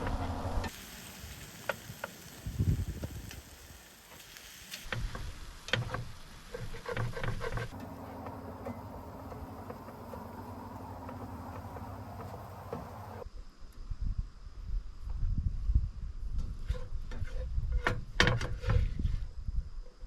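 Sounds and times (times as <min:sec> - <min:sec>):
steady low hum: 0:07.7 - 0:13.2.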